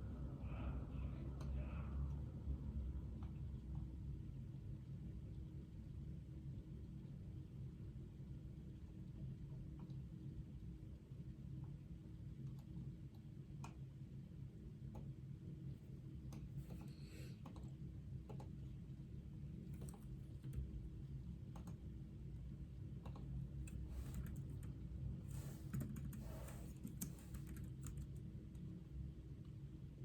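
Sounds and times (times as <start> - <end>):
steady low hum: 14.9 - 28.2
computer keyboard typing: 16.6 - 17.7, 19.7 - 20.7, 23.0 - 28.2.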